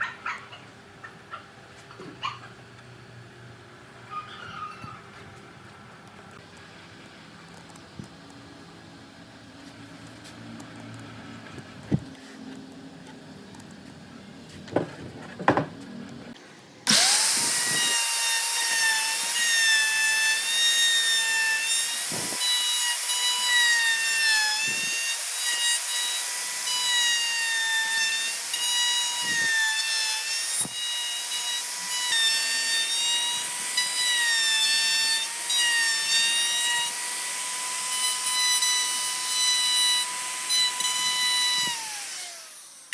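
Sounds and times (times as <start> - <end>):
electric power tool whining on wood: 16.8 - 42.9.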